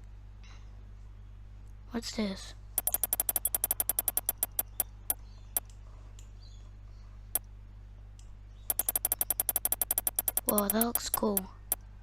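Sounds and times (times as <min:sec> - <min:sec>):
sharp clicks: 0:02.8 - 0:04.8, 0:08.7 - 0:11.8.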